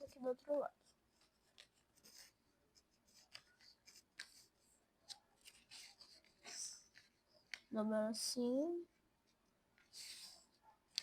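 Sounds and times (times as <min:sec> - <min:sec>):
paper crinkling and rustling: 0:00.0 - 0:07.7.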